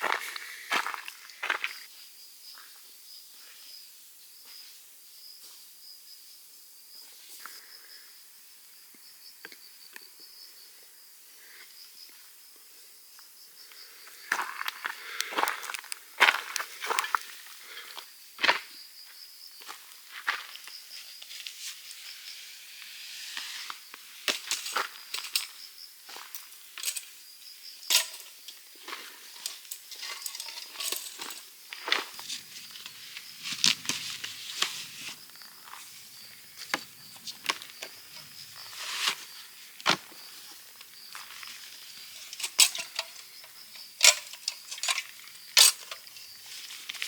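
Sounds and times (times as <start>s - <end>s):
high insect trill: 0.0s - 47.0s
camping gear clinking and knocking: 14.4s - 17.4s, 24.3s - 25.6s, 26.2s - 27.2s, 27.8s - 47.0s.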